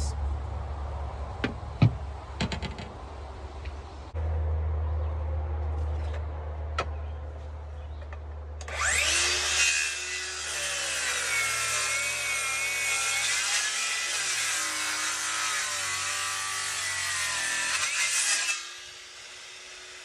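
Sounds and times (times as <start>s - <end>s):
power saw cutting lumber: 8.6s - 20.0s.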